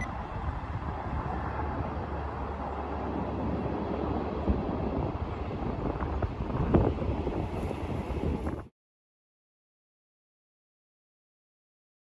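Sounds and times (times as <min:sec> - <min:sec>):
distant diesel train rumble: 0:00.0 - 0:08.6.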